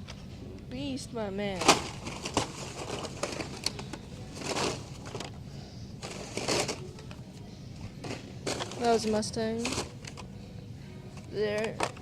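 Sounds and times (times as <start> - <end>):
packaging rustling: 1.6 - 5.4.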